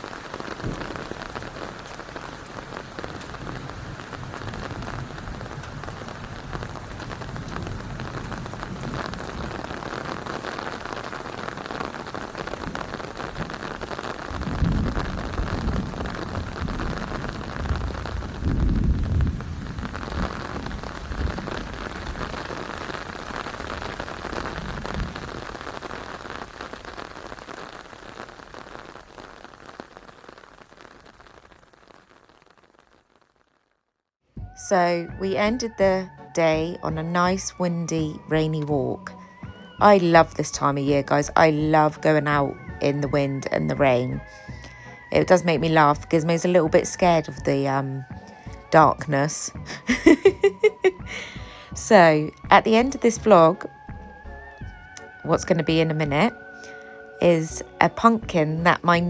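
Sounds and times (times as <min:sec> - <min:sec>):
rain falling: 0:00.0 - 0:33.1, 0:34.4 - 0:59.0
wind buffeting microphone: 0:14.3 - 0:25.7.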